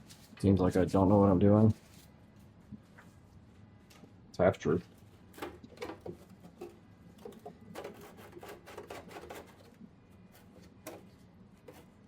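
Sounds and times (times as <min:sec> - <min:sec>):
hand tools scraping engine parts: 0:05.4 - 0:12.0.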